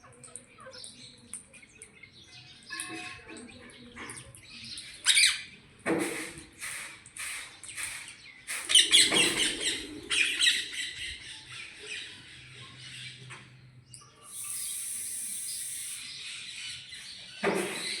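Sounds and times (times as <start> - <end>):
high-pitched hiss: 14.3 - 16.1.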